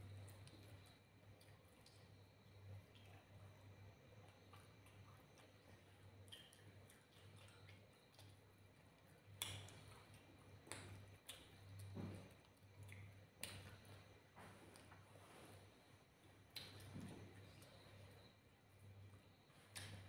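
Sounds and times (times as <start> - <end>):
low steady hum: 0.0 - 20.0
person chewing with lip smacks: 4.3 - 14.1.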